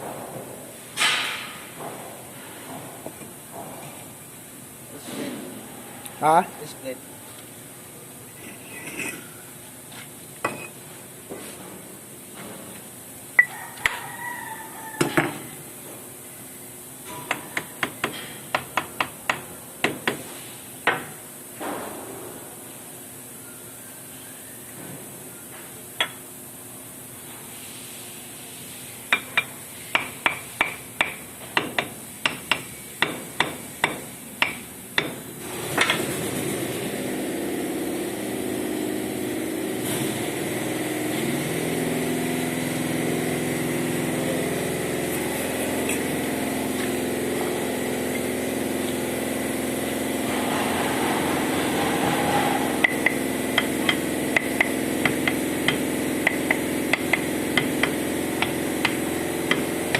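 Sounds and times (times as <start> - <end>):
motor running: 42.7 - 59.9.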